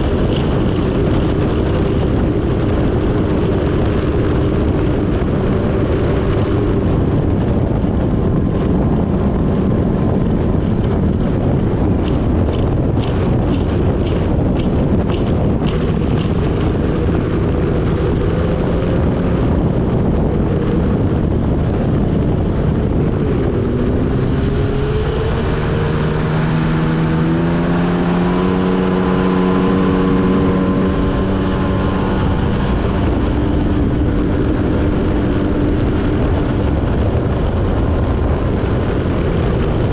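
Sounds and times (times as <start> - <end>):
jet ski engine running: 0.0 - 39.9
wind: 0.0 - 39.9.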